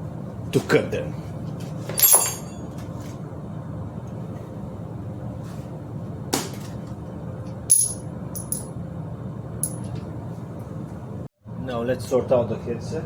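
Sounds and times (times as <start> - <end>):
steady low hum: 0.0 - 13.0
small metal clinks: 7.7 - 8.7, 9.6 - 9.9.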